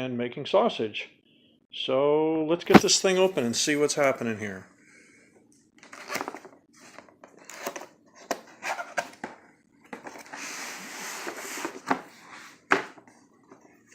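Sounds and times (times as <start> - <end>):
box handling clicks and knocks: 2.7 - 3.2
packaging rustling and crinkling: 2.7 - 3.4.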